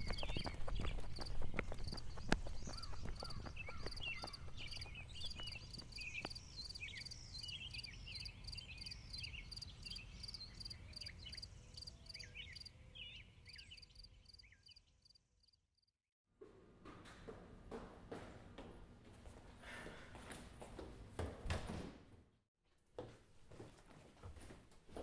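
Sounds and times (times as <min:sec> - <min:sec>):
birds twittering: 0:00.0 - 0:15.1
insect chirping: 0:03.9 - 0:12.8.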